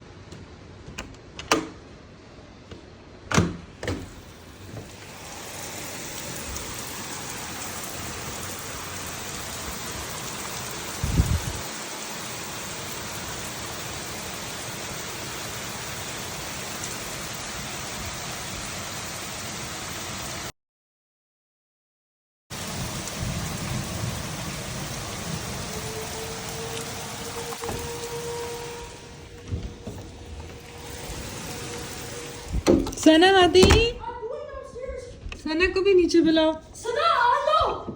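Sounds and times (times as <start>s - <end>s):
heavy rain pouring: 4.1s - 20.5s, 22.5s - 34.0s.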